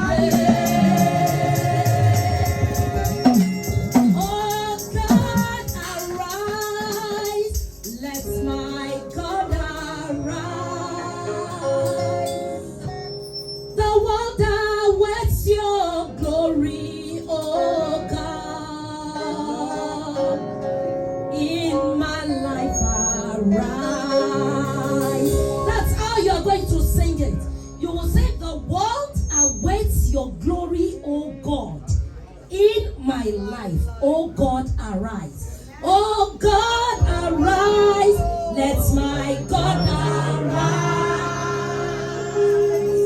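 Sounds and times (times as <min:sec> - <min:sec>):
woman singing gospel: 0:00.0 - 0:12.8, 0:13.8 - 0:31.4, 0:33.2 - 0:43.0
instrumental accompaniment with beat: 0:00.0 - 0:13.2, 0:22.8 - 0:30.1.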